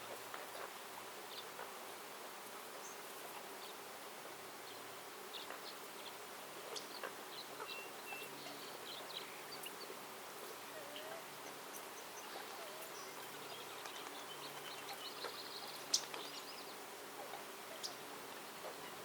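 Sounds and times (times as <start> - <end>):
forest hiss: 0.0 - 19.0
bird chirps and calls: 5.3 - 9.9, 10.6 - 19.0.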